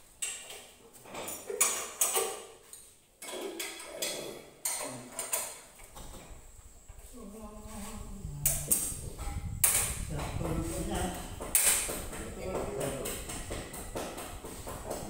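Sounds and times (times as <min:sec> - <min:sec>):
low rumble: 0:07.2 - 0:11.5.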